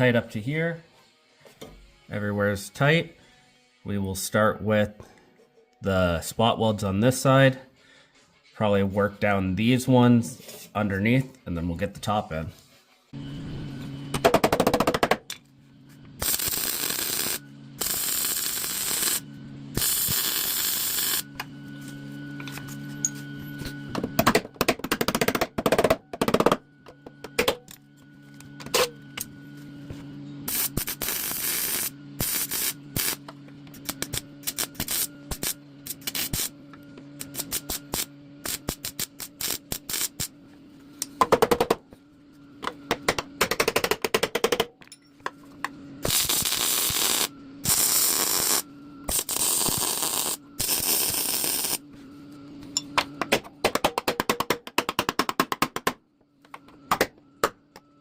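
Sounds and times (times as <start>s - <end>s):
welding arc crackling: 16.2s - 19.2s, 19.8s - 21.2s, 30.5s - 33.2s, 33.8s - 36.5s, 37.2s - 40.3s, 46.0s - 51.8s.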